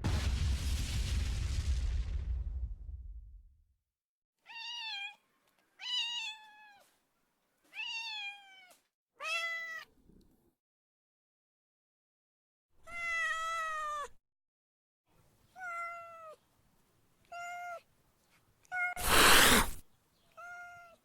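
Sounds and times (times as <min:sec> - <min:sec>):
loud boom: 0:00.0 - 0:03.6
cat meowing: 0:04.5 - 0:05.2, 0:05.8 - 0:06.9, 0:07.7 - 0:09.9, 0:12.8 - 0:14.2, 0:15.5 - 0:16.4, 0:17.2 - 0:17.8, 0:18.6 - 0:21.0.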